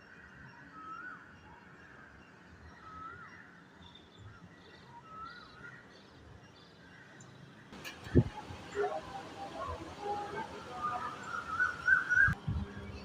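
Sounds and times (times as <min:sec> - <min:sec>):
bird rising and falling call: 0:10.8 - 0:12.4.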